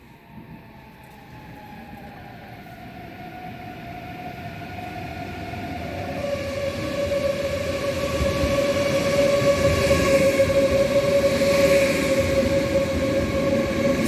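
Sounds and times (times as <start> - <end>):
high-speed train rumble: 0.0 - 14.0.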